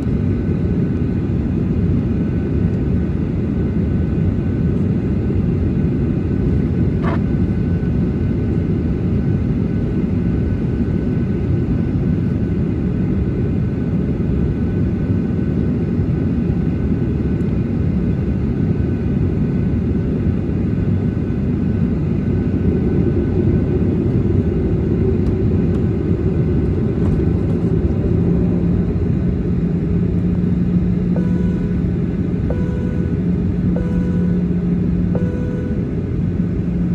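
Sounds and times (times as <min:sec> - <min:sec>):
aircraft cabin rumble while taxiing: 0:00.0 - 0:36.9
low steady hum: 0:26.4 - 0:36.9.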